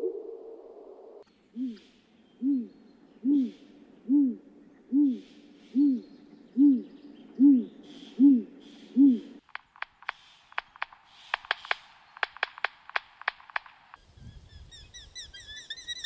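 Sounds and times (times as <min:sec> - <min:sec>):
bird low hoots: 0:00.0 - 0:09.4
faint higher bird calls: 0:01.2 - 0:09.4, 0:14.2 - 0:16.0.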